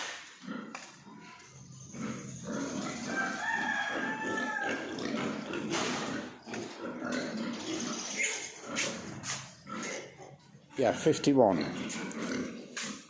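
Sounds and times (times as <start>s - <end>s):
rooster crowing: 2.9s - 5.0s.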